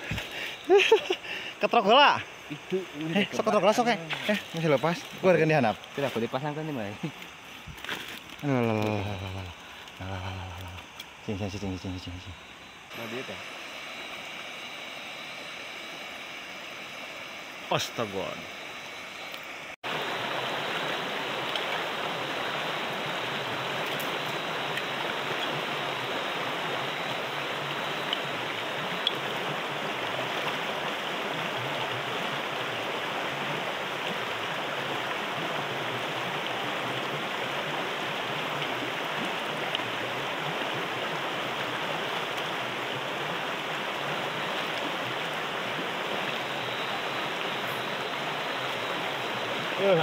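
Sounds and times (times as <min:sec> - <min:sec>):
water rushing: 0:00.0 - 0:50.0
faint ticks: 0:07.0 - 0:11.2, 0:29.0 - 0:29.2.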